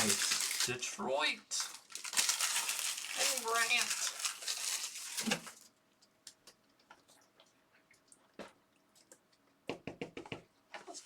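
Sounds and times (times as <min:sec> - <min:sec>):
card pack wrapper crinkling: 0:00.0 - 0:00.8, 0:01.6 - 0:05.7.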